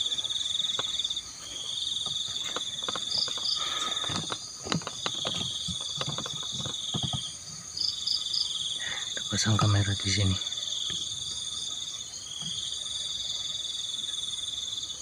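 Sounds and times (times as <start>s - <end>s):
crickets trilling: 0.0s - 15.0s
faint clicks and knocks: 0.7s - 1.1s, 2.0s - 7.3s.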